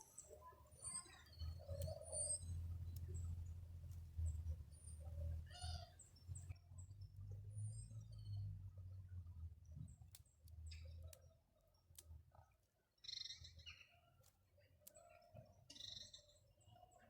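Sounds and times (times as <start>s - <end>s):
low steady hum: 0.0s - 10.3s
small birds chirping: 0.0s - 17.0s.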